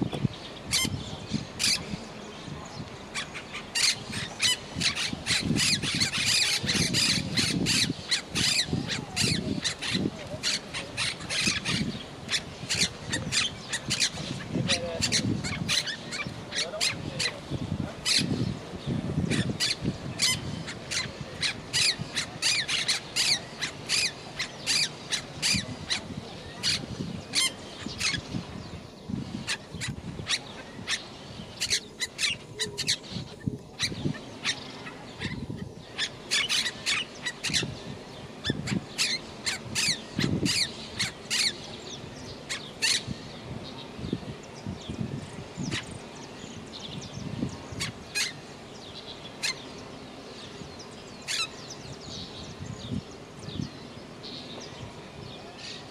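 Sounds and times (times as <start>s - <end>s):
parakeet squawking: 3.2s - 17.3s, 47.8s - 48.4s.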